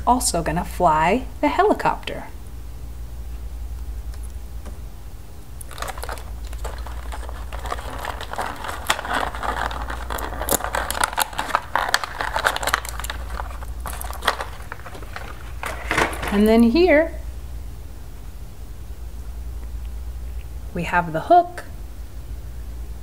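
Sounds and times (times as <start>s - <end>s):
steady low hum: 0.0s - 23.0s
plastic crinkling and rustling: 5.6s - 16.7s.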